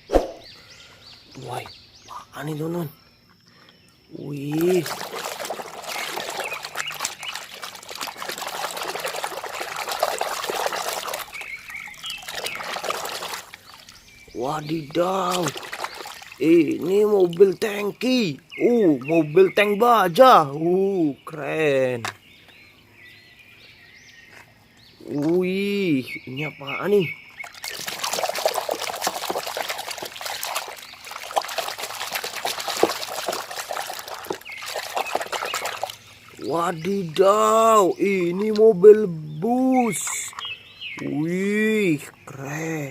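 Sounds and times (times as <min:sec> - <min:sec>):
water splashing and trickling: 0:04.0 - 0:22.2, 0:24.4 - 0:42.9.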